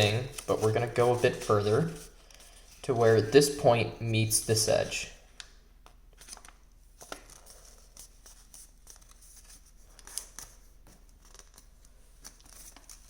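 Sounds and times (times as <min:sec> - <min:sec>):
paper crinkling and rustling: 0:00.0 - 0:03.4, 0:06.2 - 0:13.0.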